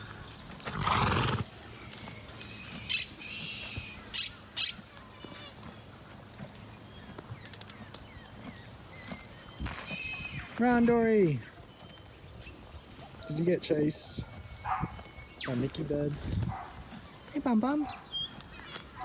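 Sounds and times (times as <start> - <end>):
high bird squawks: 2.9 - 4.8.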